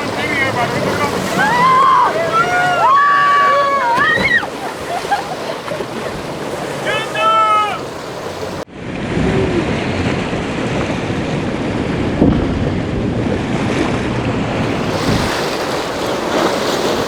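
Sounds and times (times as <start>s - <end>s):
waves breaking: 0.0s - 17.0s
wind buffeting microphone: 7.9s - 17.0s.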